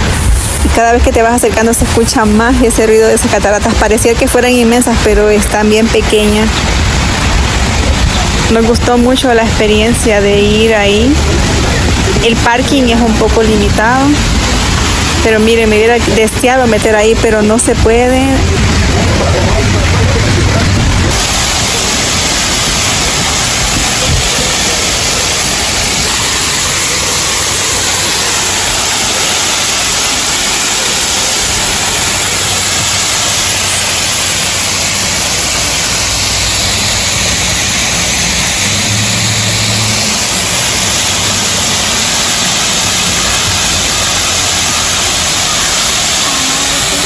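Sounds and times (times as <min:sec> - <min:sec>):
waterfall rushing: 0:00.0 - 0:47.0
vehicle passing: 0:36.8 - 0:45.1.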